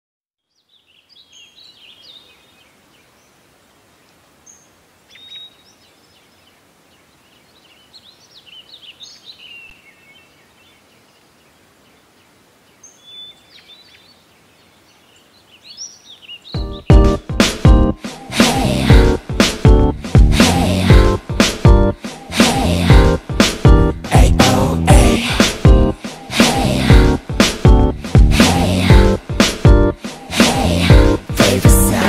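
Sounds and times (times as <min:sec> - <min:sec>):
small birds chirping: 0:00.4 - 0:17.2
faint steady hiss: 0:00.4 - 0:19.7.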